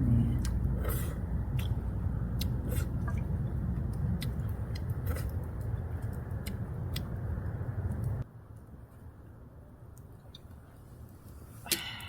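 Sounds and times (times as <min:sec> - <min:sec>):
steady low rumble: 0:00.0 - 0:12.0
person chewing noodles: 0:00.4 - 0:07.4.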